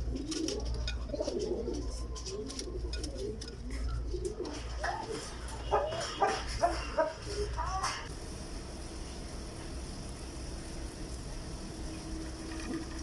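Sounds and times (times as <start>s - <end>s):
pigeons cooing: 0.0s - 7.6s
steady low hum: 7.4s - 13.0s.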